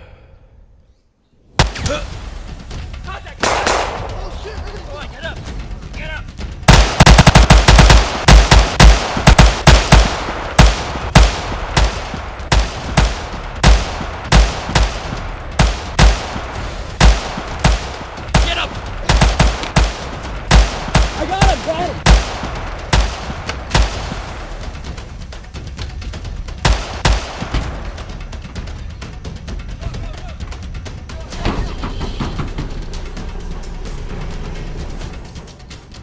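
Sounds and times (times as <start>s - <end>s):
gunfire: 1.6s - 2.2s, 3.4s - 4.9s, 6.6s - 25.2s, 26.6s - 28.3s.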